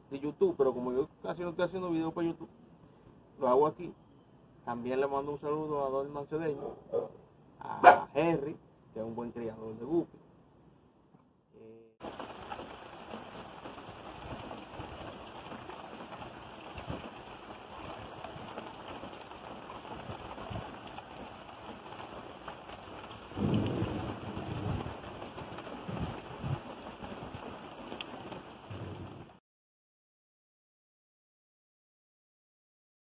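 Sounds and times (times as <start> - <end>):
rain falling on pond water: 12.0 - 29.4.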